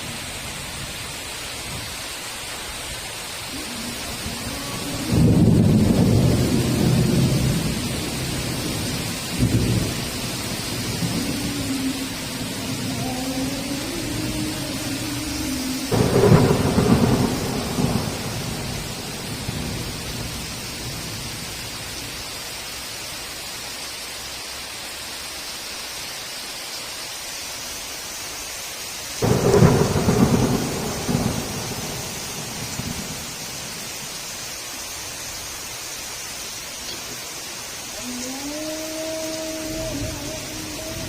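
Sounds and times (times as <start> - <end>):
heavy rain: 0.0 - 41.0
thunder cracks rumbling: 3.9 - 13.2, 13.8 - 21.2, 29.2 - 34.0.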